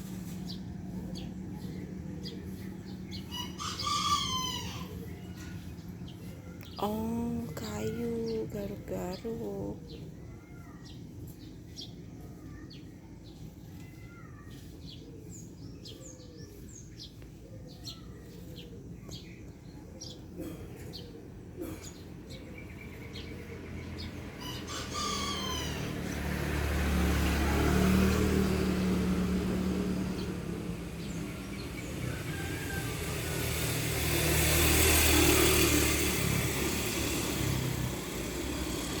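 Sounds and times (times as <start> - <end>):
motor vehicle passing: 0.0 - 7.8, 20.0 - 39.0
birds chirping: 0.0 - 39.0.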